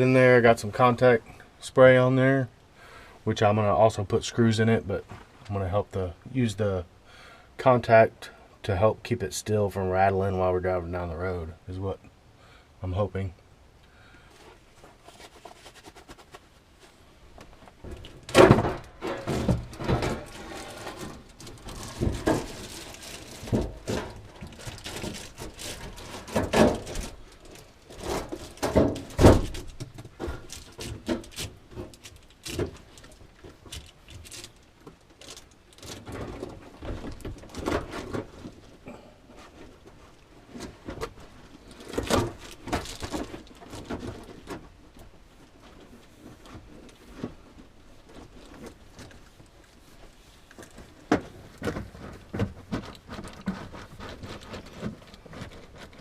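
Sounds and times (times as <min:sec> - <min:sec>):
sheet metal knocks and thunks: 0:17.8 - 0:22.6.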